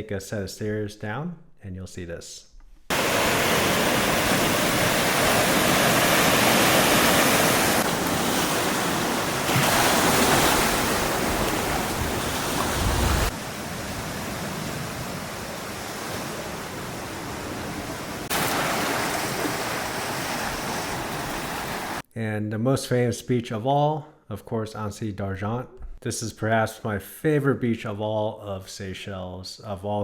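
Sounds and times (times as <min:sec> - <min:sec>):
sea waves washing onto beach: 0:02.9 - 0:22.0
wind on microphone: 0:04.2 - 0:17.8.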